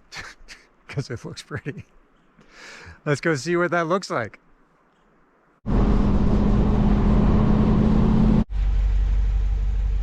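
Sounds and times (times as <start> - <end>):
truck engine and road noise: 5.7 - 10.0.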